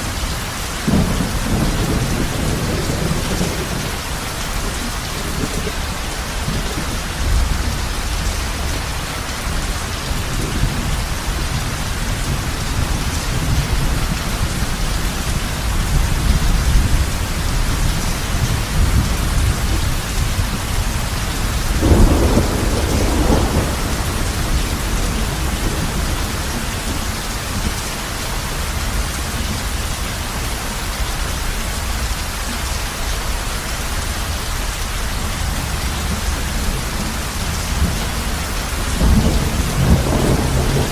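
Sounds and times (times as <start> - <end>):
heavy rain on a roof: 0.0 - 40.9
loud thunderclap: 0.8 - 4.0, 21.7 - 27.1, 39.0 - 40.9
low thunder rumbling: 0.8 - 29.8, 35.3 - 40.9.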